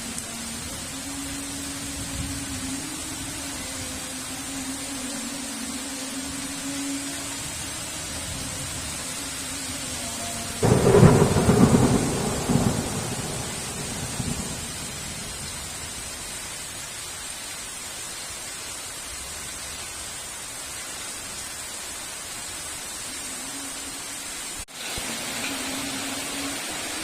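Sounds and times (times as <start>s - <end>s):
heavy rain: 0.0s - 27.0s
thunderclap rumbling: 10.6s - 15.7s.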